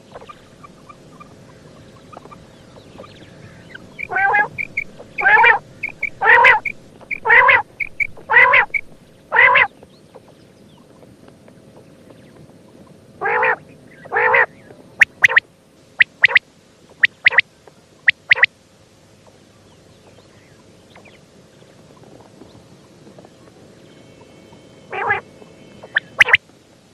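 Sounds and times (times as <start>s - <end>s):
quail calling: 0.0s - 9.7s, 13.2s - 15.4s, 16.0s - 16.4s, 17.0s - 17.4s, 18.1s - 18.5s, 24.9s - 25.2s, 25.8s - 26.4s.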